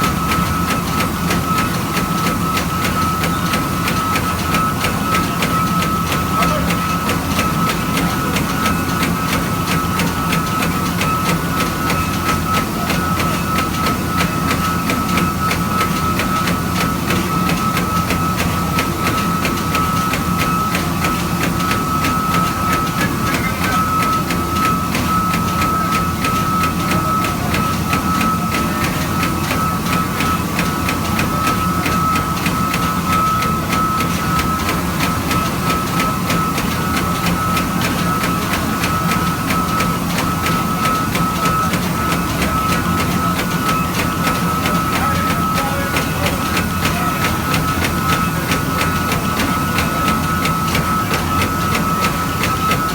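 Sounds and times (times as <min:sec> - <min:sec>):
continuous mechanical noise: 0:00.0 - 0:52.9
high spindle whine: 0:00.0 - 0:52.9.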